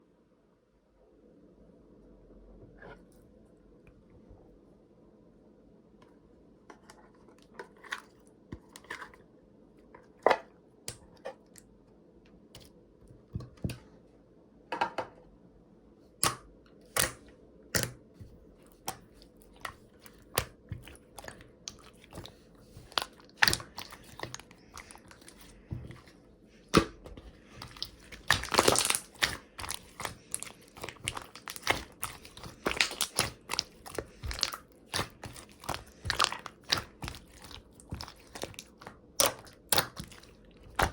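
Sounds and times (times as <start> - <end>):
slime clicking and popping: 26.7 - 40.9.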